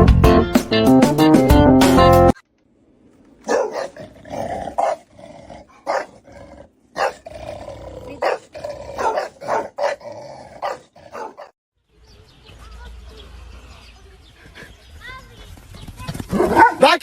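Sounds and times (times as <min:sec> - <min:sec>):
dog growling and barking: 0:03.4 - 0:11.6.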